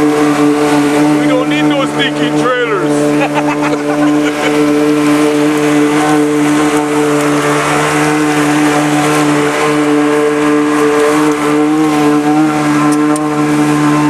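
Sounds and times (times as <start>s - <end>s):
boat engine running steadily: 0.0s - 14.0s.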